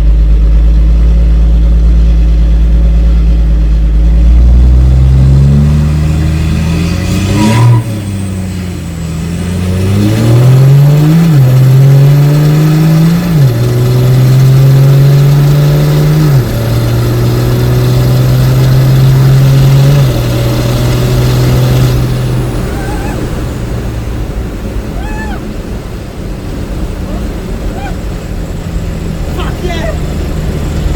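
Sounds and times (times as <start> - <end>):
diesel truck engine shifting gears: 0.0 - 30.9.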